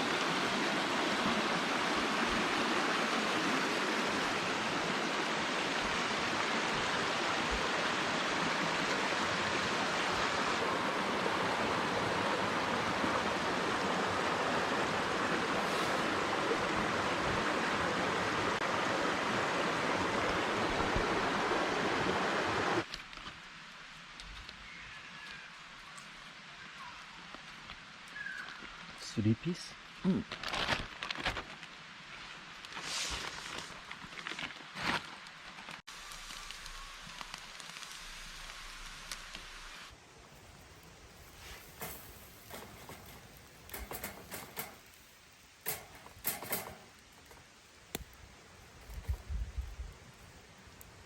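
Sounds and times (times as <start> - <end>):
stream water rushing: 0.0 - 22.9.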